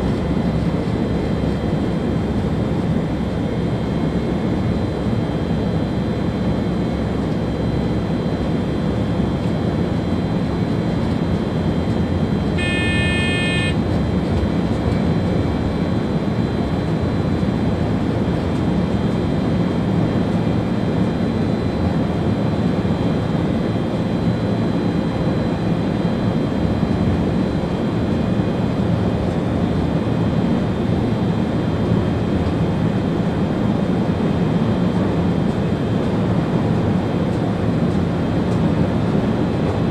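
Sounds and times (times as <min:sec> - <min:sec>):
high-pitched beep: 0:12.6 - 0:13.8.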